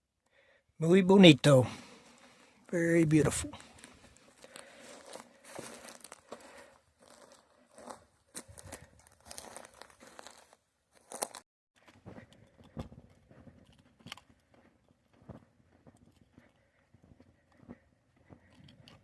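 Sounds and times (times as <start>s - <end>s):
footsteps on gravel: 3.1s - 16.6s.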